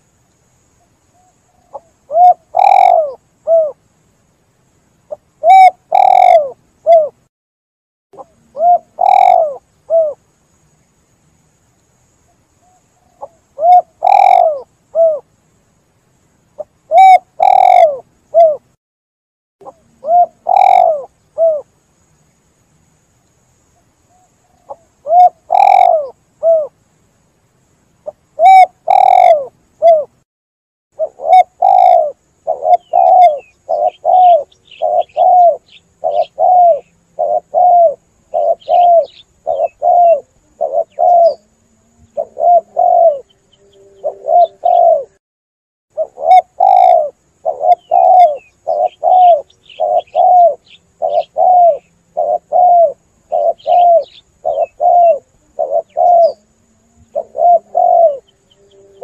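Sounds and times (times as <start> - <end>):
dove cooing: 1.2 - 3.8, 5.1 - 7.2, 8.2 - 10.2, 12.6 - 15.3, 16.6 - 18.7, 19.6 - 21.7, 24.1 - 26.8, 28.0 - 30.1, 31.0 - 45.2, 46.0 - 59.0.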